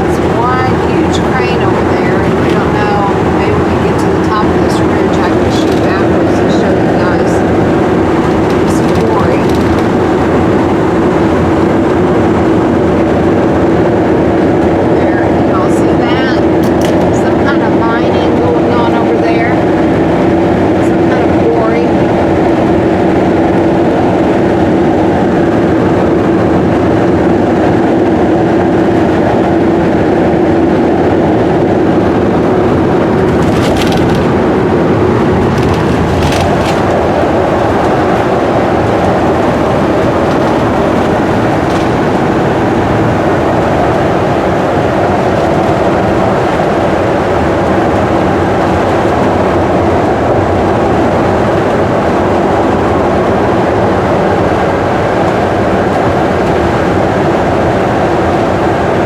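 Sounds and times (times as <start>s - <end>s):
road and engine noise in vehicle: 0.0s - 59.0s
brief rattles: 33.2s - 42.3s.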